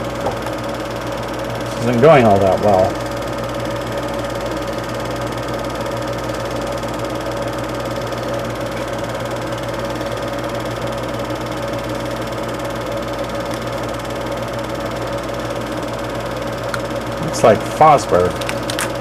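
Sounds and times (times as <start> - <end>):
constant low hum: 0.0 - 7.4.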